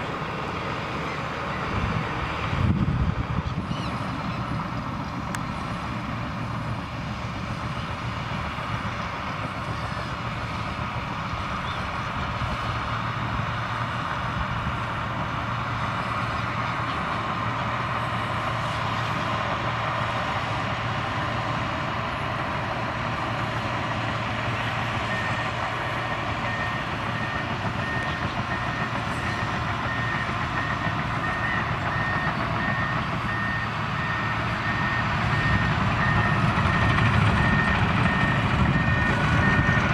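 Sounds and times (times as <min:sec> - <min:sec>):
bulldozer diesel engine: 0:00.0 - 0:39.9
reversing alarm beeping: 0:25.0 - 0:39.9.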